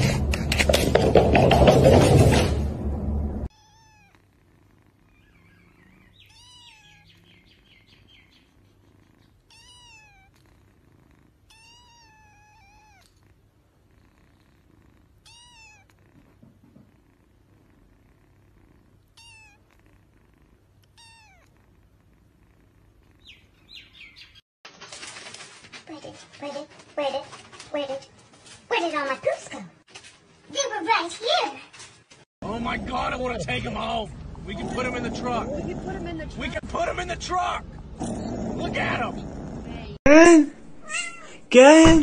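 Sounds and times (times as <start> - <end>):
kitten mewing: 3.5 - 4.4, 5.0 - 7.3, 8.5 - 10.6, 11.4 - 13.3, 15.0 - 16.5, 19.1 - 19.9, 20.8 - 21.6.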